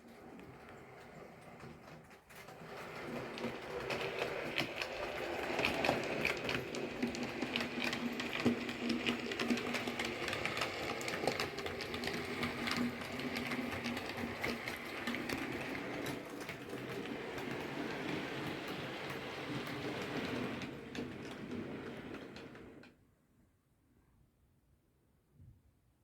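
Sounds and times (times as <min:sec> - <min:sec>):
wheels clicking on track: 0:00.0 - 0:23.0.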